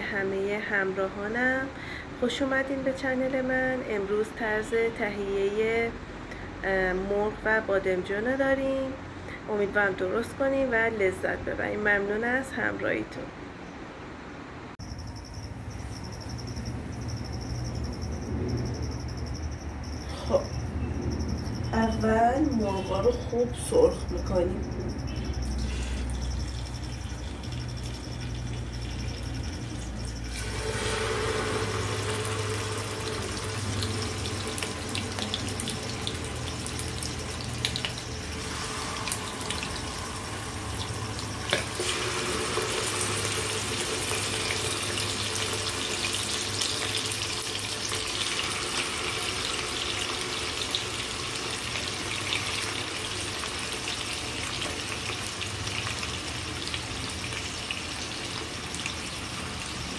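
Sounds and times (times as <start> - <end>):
chicken sizzling in hot oil: 25.4 - 59.9.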